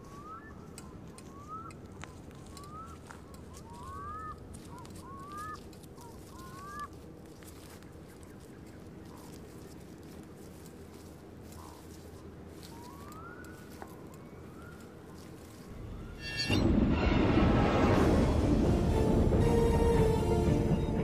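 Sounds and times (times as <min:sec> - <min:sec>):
bird rising calls: 0:00.0 - 0:07.0, 0:12.6 - 0:15.1
low rumble: 0:15.7 - 0:21.0.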